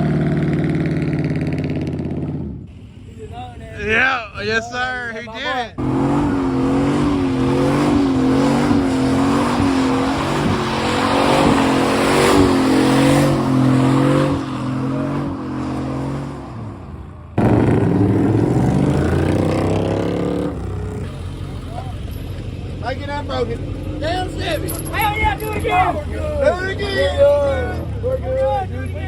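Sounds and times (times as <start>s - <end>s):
truck engine at high revs: 0.0s - 29.0s
tyres sliding on gravel: 21.0s - 29.0s.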